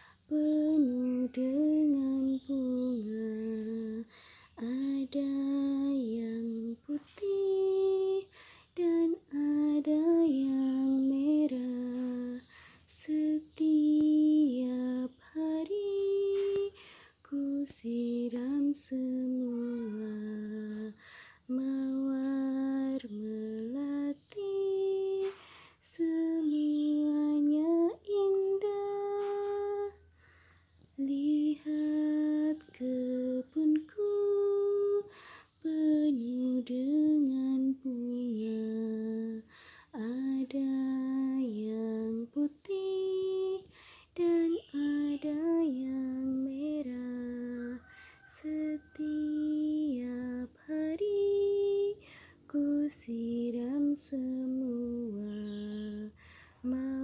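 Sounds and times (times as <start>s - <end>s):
woman singing unaccompanied: 0.0s - 57.0s.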